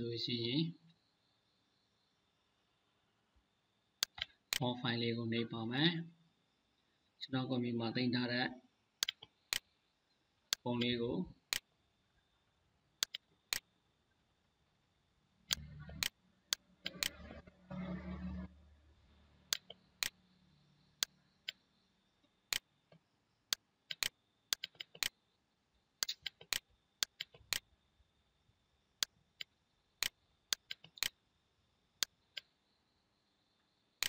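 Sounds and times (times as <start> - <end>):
computer mouse clicking: 4.0 - 4.6, 9.0 - 9.7, 11.5 - 11.7, 13.0 - 13.7, 15.5 - 18.2, 19.5 - 20.2, 22.5 - 25.2, 26.0 - 27.7, 29.0 - 31.2
scroll-wheel ticking: 13.0 - 13.7, 15.5 - 18.5, 19.5 - 20.2, 23.5 - 25.1, 26.0 - 27.7, 29.0 - 31.2
low hum: 15.4 - 21.9.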